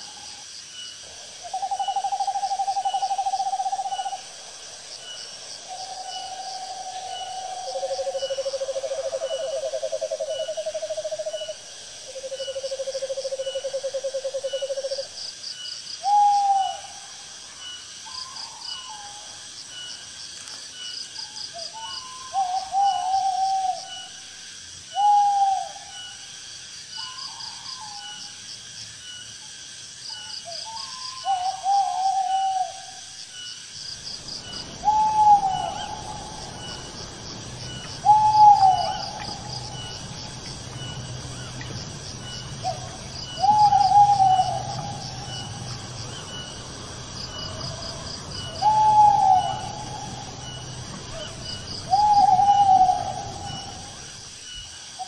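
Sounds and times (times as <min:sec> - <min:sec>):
night insects chirping: 0:00.0 - 0:55.0
owl hooting: 0:01.5 - 0:04.3, 0:34.4 - 0:37.0, 0:37.6 - 0:46.6, 0:47.4 - 0:54.1.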